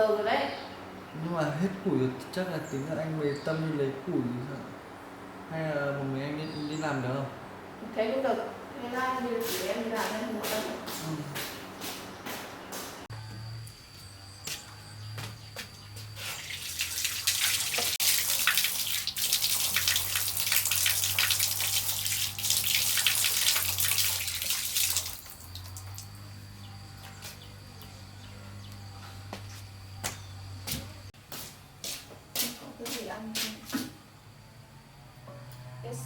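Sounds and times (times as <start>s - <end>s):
water pouring and splashing: 16.2s - 26.2s.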